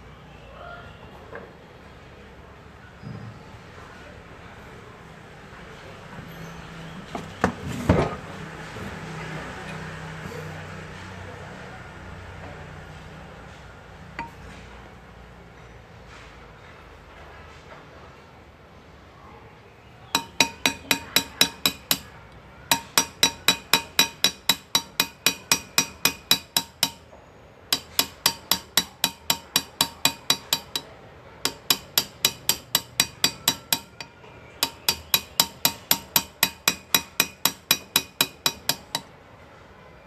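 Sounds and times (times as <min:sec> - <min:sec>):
hammer tapping metal graver: 0:14.2 - 0:14.4, 0:20.2 - 0:30.9, 0:31.5 - 0:39.1.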